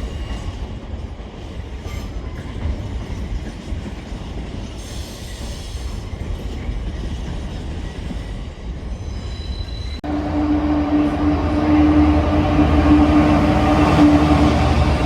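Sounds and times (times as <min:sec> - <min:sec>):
train rumbling: 0:00.0 - 0:15.0
train wheel squeal: 0:01.6 - 0:15.0
humming tone from train: 0:07.4 - 0:15.0.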